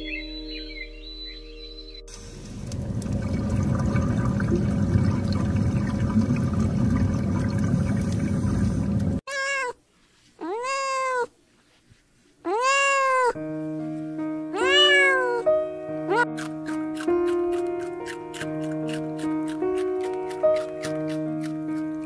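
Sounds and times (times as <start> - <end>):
music: 0.0 - 2.8, 13.4 - 22.0.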